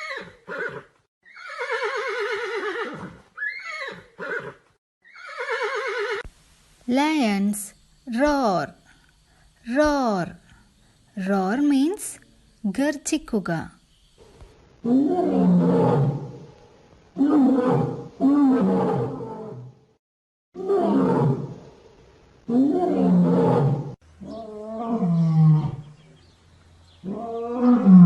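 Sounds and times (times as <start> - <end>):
lion roaring: 22.5 - 25.9, 27.0 - 28.0.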